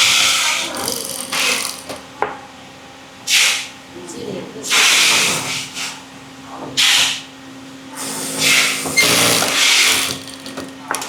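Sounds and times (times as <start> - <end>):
machine hissing bursts: 8.0 - 10.6.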